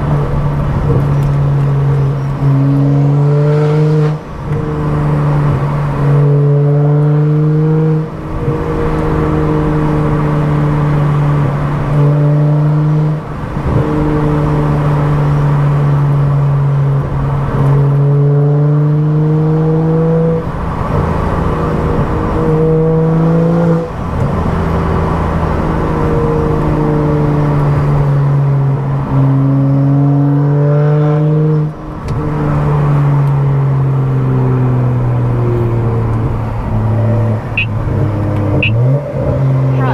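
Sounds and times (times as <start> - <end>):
car engine accelerating through gears: 0.0 - 39.9.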